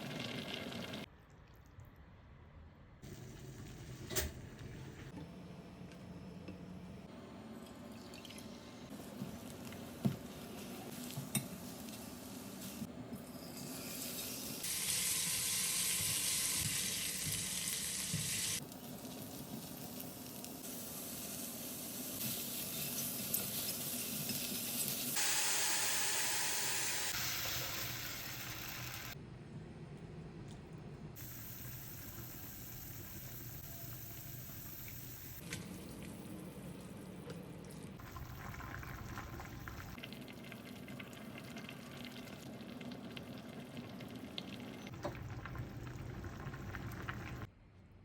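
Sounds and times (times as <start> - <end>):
food sizzling in oil: 13.5 - 29.2.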